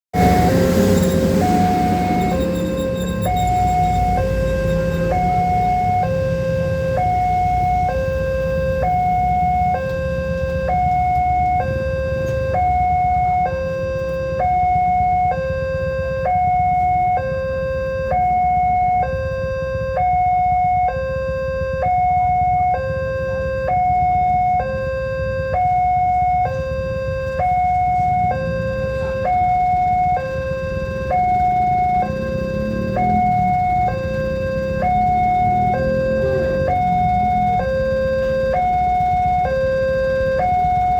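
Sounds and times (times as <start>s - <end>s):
two-tone crossing alarm: 0.1s - 40.9s
low rumble: 0.2s - 6.0s.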